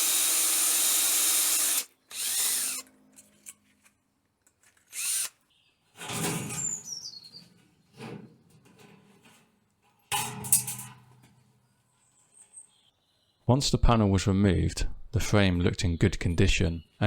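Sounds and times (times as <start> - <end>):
power drill drilling rivets: 0.0 - 2.9, 4.7 - 5.4.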